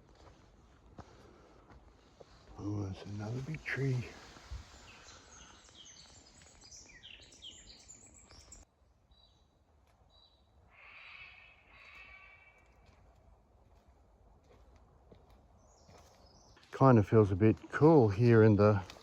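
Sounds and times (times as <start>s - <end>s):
birds chattering: 2.6s - 8.6s
faint bird calls: 2.6s - 8.6s, 10.2s - 13.0s.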